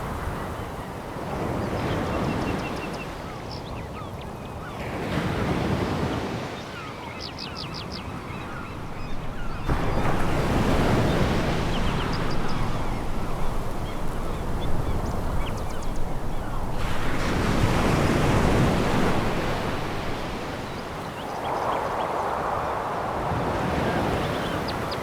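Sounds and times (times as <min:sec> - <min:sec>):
waves washing over pebbles: 0:08.8 - 0:25.0.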